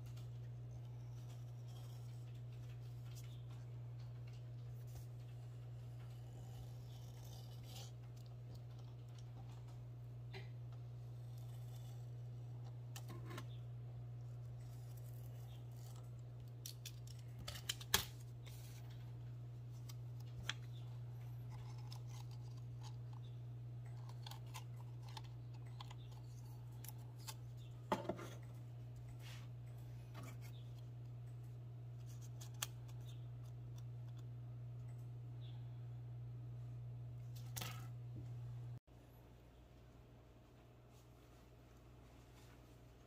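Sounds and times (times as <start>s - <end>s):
steady low hum: 0.0s - 43.0s
small clicks and rustles: 0.1s - 6.4s.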